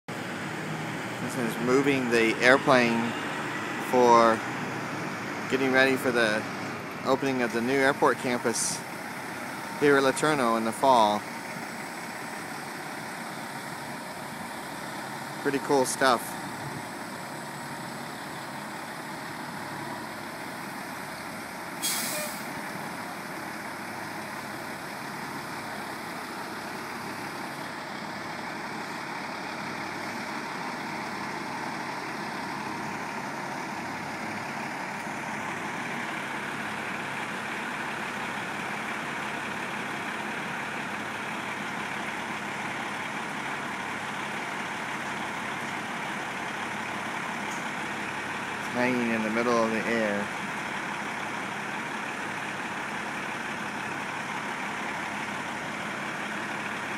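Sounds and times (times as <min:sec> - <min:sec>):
crane engine running: 0:00.1 - 0:56.9
sharp hiss of air: 0:21.8 - 0:22.5.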